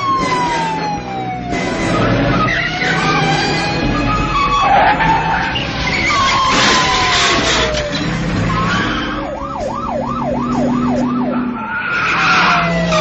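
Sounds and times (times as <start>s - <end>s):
cars running: 0.0s - 13.0s
police siren wailing: 0.0s - 13.0s
tyres screeching: 1.7s - 9.3s.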